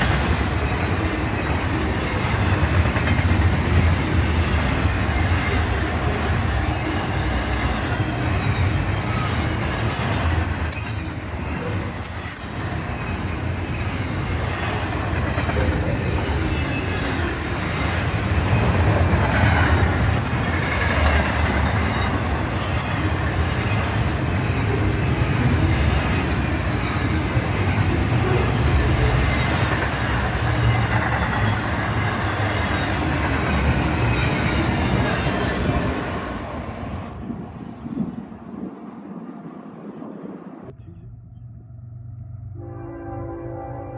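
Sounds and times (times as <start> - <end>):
train wheels rumbling on rail: 0.0 - 42.6
high wheel squeal: 4.6 - 15.1.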